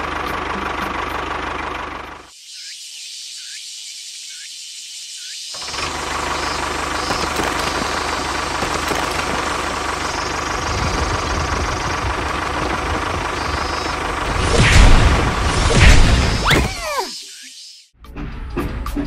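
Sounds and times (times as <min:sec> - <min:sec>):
tractor engine running: 0:00.0 - 0:02.3, 0:05.6 - 0:16.8
faint high chirps: 0:16.3 - 0:17.9.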